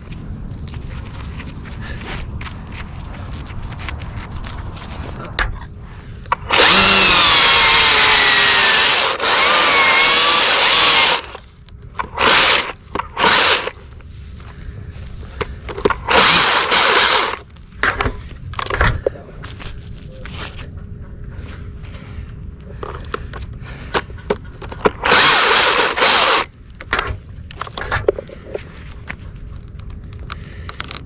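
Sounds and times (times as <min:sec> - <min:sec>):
chainsaw cutting wood: 0:06.4 - 0:11.4, 0:12.0 - 0:13.8, 0:15.9 - 0:17.4, 0:25.0 - 0:26.5.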